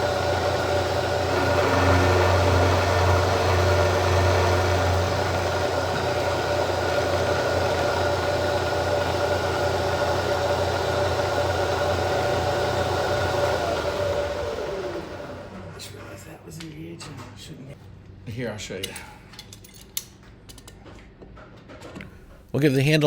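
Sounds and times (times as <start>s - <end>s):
milling machine cutting steel: 0.0s - 15.7s.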